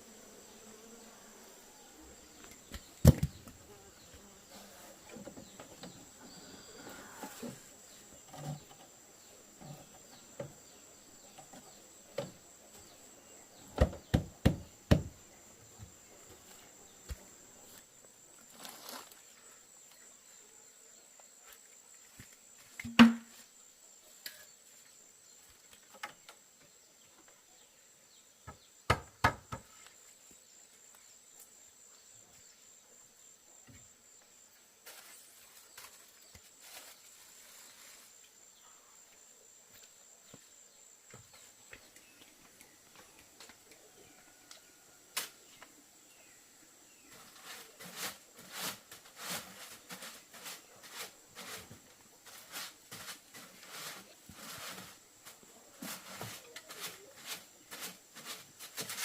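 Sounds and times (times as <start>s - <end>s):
sharp knocks: 22.9s - 23.3s.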